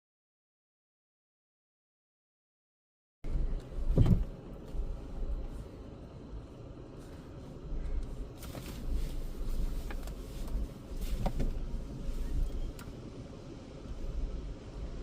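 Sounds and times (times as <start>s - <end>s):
car engine idling: 3.2s - 15.0s.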